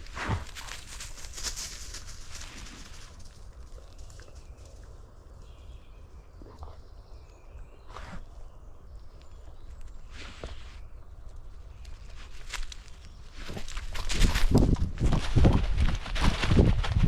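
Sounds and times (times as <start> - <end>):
dog paws crunching on trail: 0.0 - 4.8, 9.0 - 17.0.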